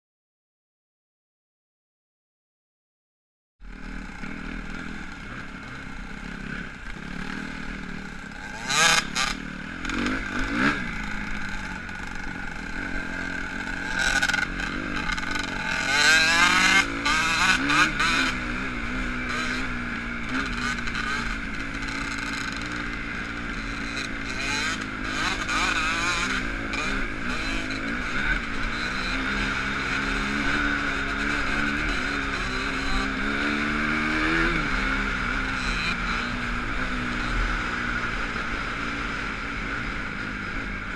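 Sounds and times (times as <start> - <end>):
motocross bike engine revving: 3.7 - 40.9.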